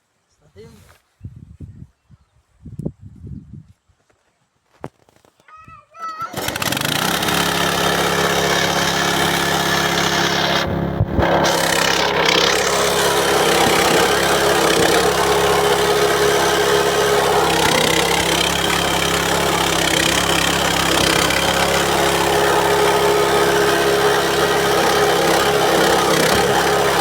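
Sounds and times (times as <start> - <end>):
grinding machine humming: 6.3 - 27.0.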